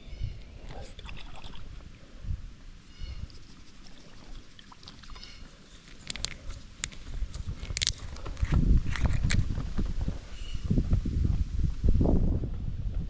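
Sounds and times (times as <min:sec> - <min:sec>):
faint bird chirps: 0:00.0 - 0:00.5, 0:02.8 - 0:03.4, 0:05.0 - 0:05.5.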